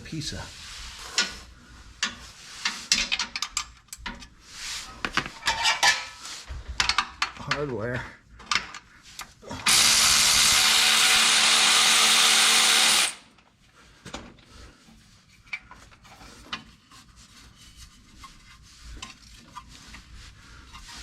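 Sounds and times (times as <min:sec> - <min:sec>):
electric ratchet running: 0:09.6 - 0:13.3.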